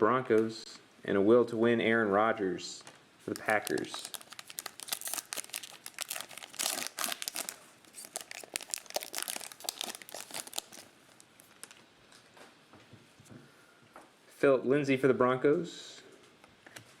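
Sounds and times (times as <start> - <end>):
plastic wrapper crinkling and tearing: 3.3 - 11.8.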